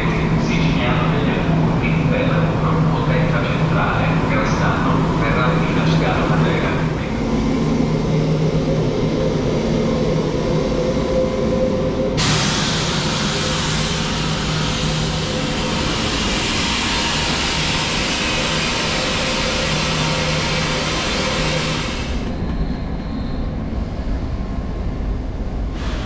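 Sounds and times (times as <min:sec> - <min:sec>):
train carriage running noise: 0:00.0 - 0:26.0.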